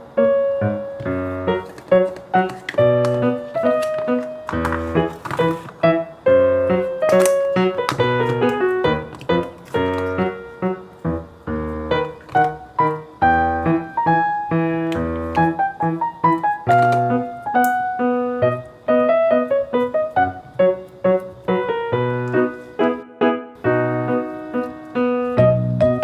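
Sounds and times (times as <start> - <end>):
piano keyboard tune: 0.0 - 26.0.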